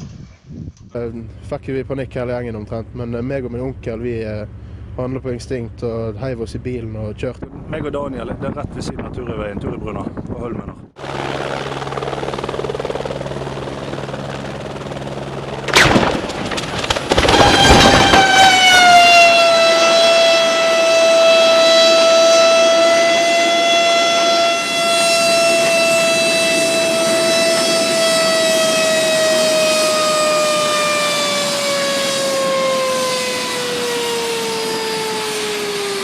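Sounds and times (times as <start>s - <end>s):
low steady hum: 0.8s - 8.4s
high whine dropping in pitch: 14.7s - 36.0s
loud impact: 15.7s - 18.7s.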